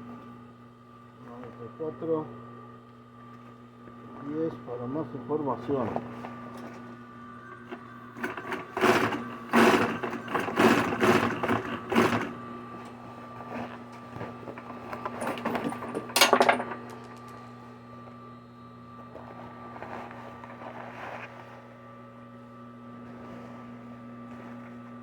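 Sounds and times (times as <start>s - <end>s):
sewing machine stitching: 8.2s - 12.4s.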